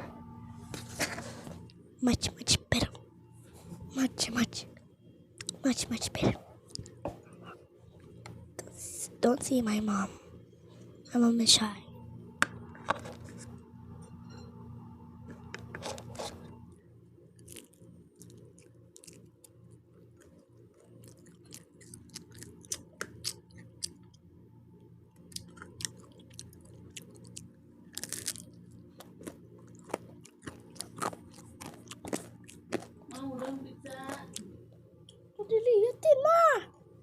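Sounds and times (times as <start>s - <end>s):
person chewing pizza: 6.6s - 8.8s, 15.4s - 16.6s, 17.4s - 24.3s, 25.1s - 35.2s.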